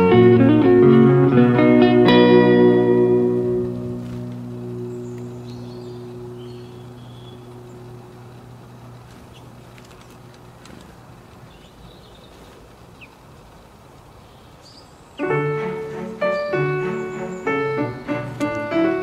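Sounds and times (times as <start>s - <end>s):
outdoor background noise: 0.0s - 19.0s
faint bird chirps: 4.8s - 10.2s.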